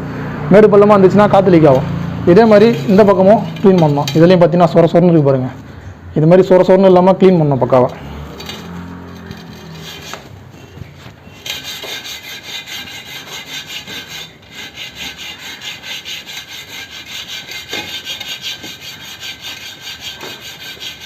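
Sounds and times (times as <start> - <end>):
sandpaper rubbing on metal rim: 2.3 - 4.4, 9.1 - 10.4, 11.3 - 21.0.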